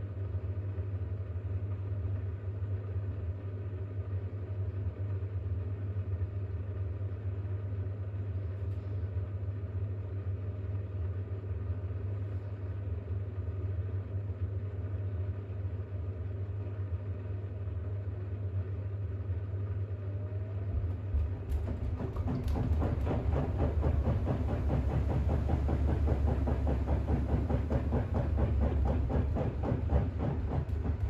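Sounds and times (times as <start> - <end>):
washing machine spinning: 18.6 - 31.0.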